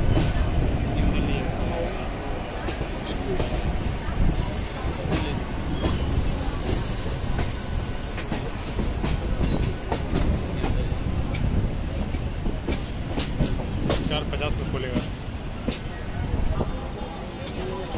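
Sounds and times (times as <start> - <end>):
train wheels clattering on track: 0.0 - 1.8, 2.5 - 17.9
faint high wheel squeals: 11.7 - 12.2.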